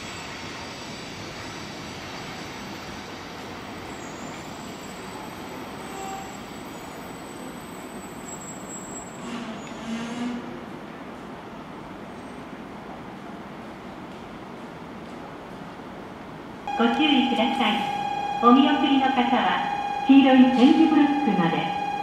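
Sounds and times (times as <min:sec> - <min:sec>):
train rumbling and braking: 0:00.0 - 0:22.0
faint high whine: 0:16.7 - 0:22.0.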